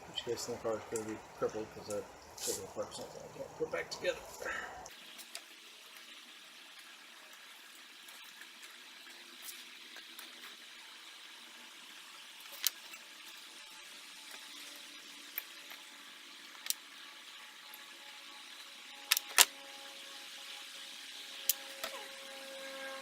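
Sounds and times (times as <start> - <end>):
background hiss: 0.0 - 23.0.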